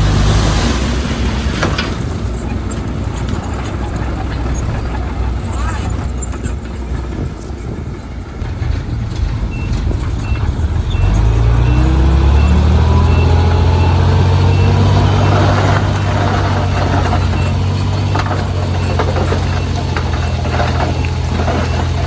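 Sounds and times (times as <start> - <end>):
heavy diesel engine running: 0.0 - 22.0
machinery rattling and clanking: 0.0 - 22.0
faint repeating beep: 9.5 - 15.5.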